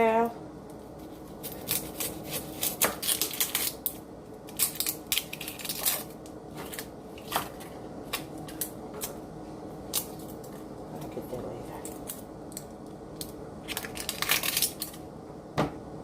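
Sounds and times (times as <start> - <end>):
faint steady hum: 0.0 - 16.0
onion crackling under knife: 0.9 - 9.2, 11.8 - 15.1.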